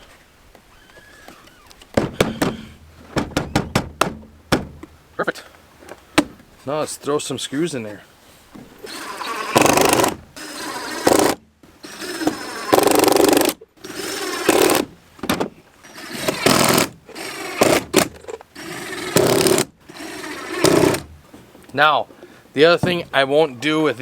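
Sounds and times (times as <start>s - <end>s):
power drill driving screws: 8.8s - 14.9s, 15.8s - 21.1s.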